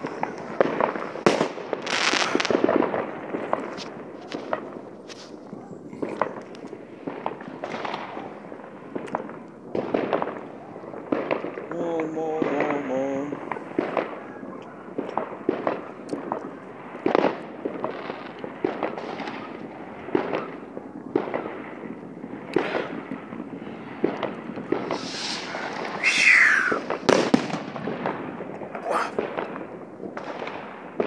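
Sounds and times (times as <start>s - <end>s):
whistling firework hissing: 0.0s - 2.7s, 18.8s - 27.7s
fireworks bangs and pops: 0.0s - 31.0s.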